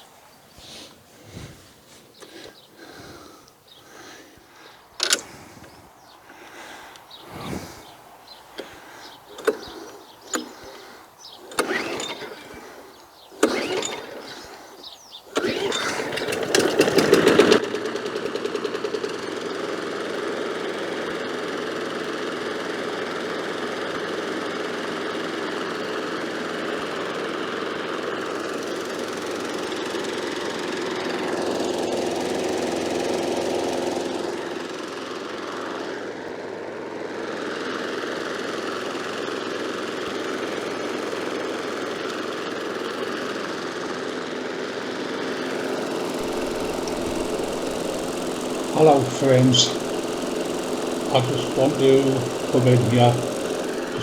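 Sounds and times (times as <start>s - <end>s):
lawn mower engine running: 0.0s - 54.0s
short noises: 0.6s - 17.6s, 45.5s - 54.0s.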